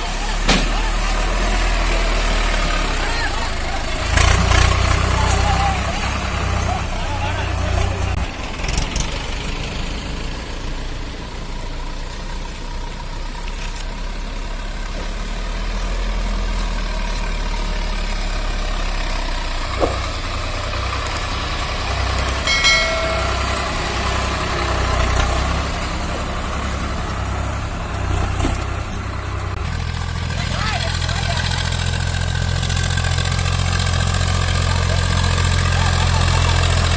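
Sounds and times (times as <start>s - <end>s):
tractor diesel engine running: 0.0s - 36.9s
short pitched tone: 22.5s - 24.3s.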